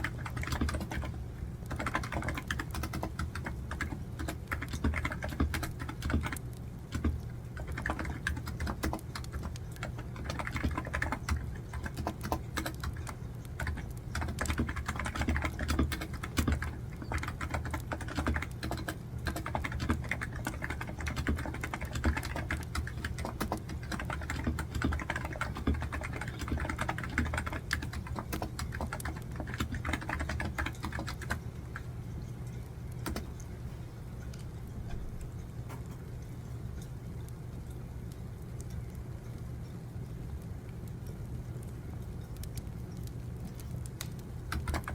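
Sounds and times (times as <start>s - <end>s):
keyboard typing: 0.0s - 31.9s, 32.6s - 33.5s, 42.4s - 44.9s
constant low hum: 0.0s - 44.9s.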